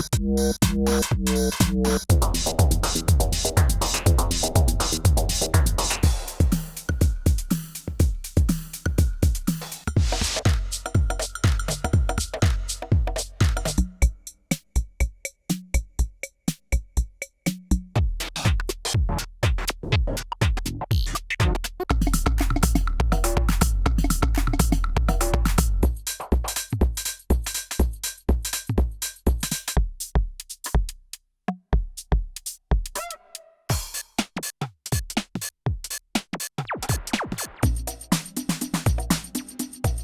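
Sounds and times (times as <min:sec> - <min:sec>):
deep kick and bass: 0:00.0 - 0:14.2, 0:16.8 - 0:30.9, 0:37.6 - 0:40.0
drum machine electronic hits: 0:00.0 - 0:14.9, 0:15.5 - 0:31.0, 0:33.7 - 0:40.0.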